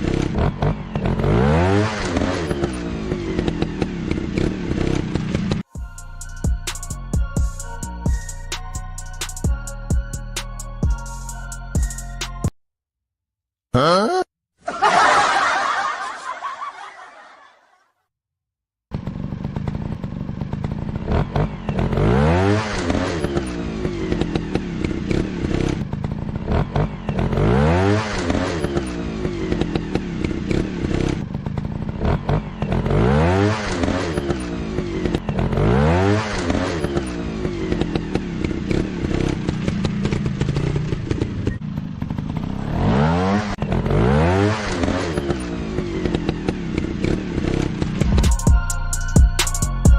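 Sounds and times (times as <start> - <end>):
motorcycle engine revving: 0.0 - 8.8, 18.9 - 49.1.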